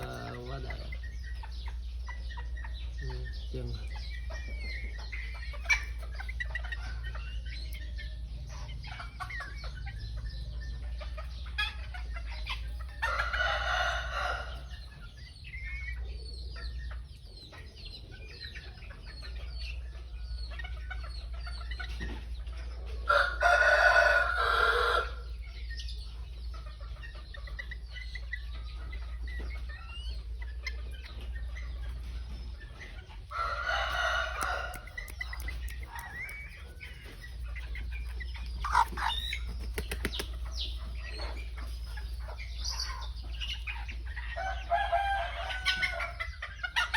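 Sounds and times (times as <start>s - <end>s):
chickens clucking and chirping: 0.0s - 46.9s.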